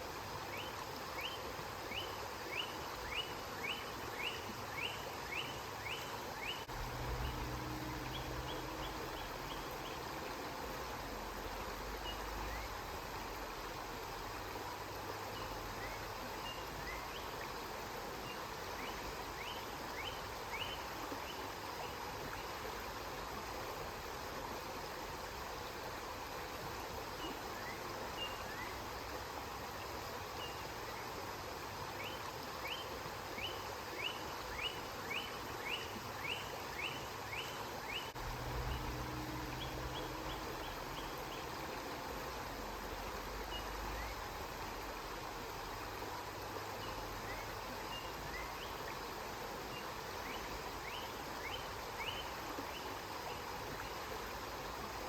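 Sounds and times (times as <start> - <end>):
river water rushing: 0.0 - 55.0
low rumble: 6.7 - 9.9, 38.2 - 41.2.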